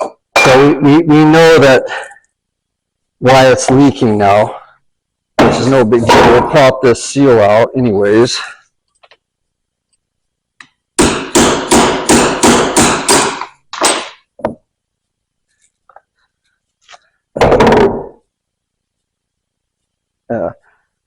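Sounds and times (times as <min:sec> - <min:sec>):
hammer striking metal: 0:11.0 - 0:14.2.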